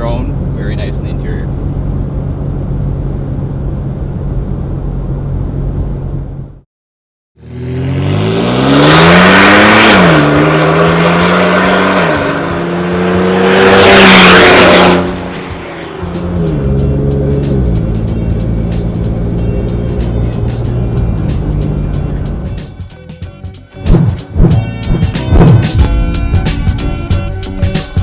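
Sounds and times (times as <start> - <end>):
truck engine accelerating: 0.0 - 6.6, 7.4 - 22.8.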